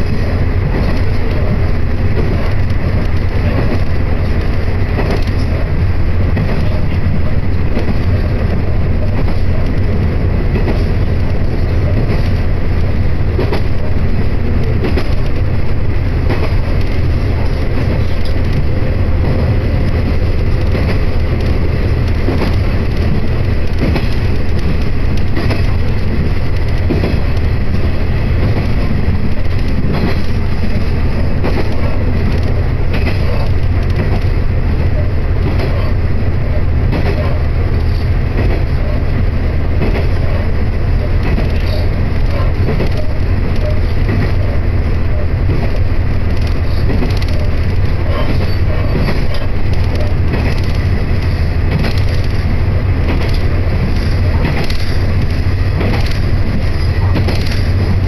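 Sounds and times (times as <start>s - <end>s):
railcar cabin rumble: 0.0s - 58.0s
wheel clicks on rails: 16.2s - 36.0s, 41.0s - 58.0s.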